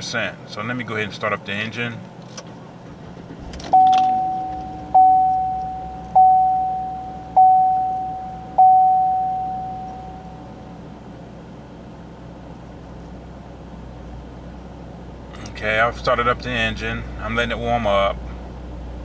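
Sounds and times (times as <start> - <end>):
dashboard warning chime pinging: 3.6 - 11.0.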